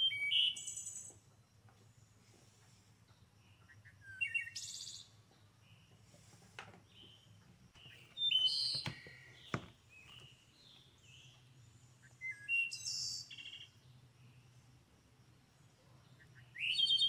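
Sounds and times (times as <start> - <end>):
songbird chirping and singing: 0.0 - 17.0
faint low hum: 9.0 - 16.7.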